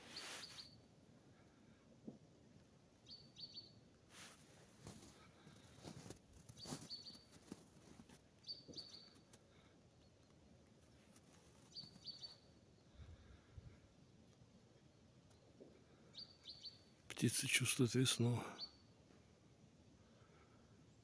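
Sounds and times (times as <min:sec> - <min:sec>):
soft crackles: 0:00.0 - 0:00.8, 0:04.1 - 0:12.5
songbird chirping: 0:00.0 - 0:00.9, 0:02.9 - 0:04.4, 0:05.1 - 0:13.4, 0:14.0 - 0:19.4.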